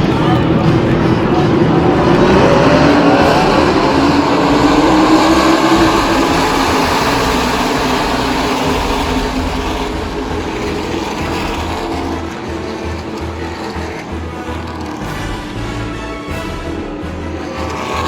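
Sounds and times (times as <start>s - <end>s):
race trucks passing at speed: 0.0s - 18.0s.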